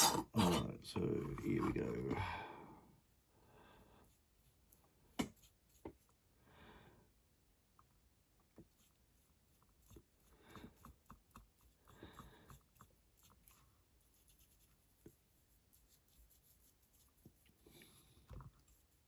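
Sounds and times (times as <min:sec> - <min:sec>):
brush rubbing on model car: 0:04.0 - 0:06.1, 0:08.6 - 0:17.7, 0:18.5 - 0:19.0.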